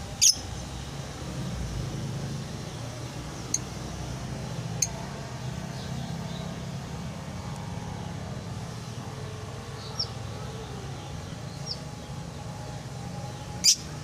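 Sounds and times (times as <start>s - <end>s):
bird chirps: 0.2s - 0.4s.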